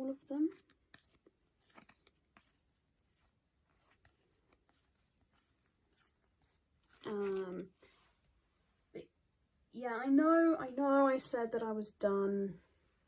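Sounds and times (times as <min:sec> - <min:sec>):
plastic sleeves rustling: 0:00.0 - 0:09.0.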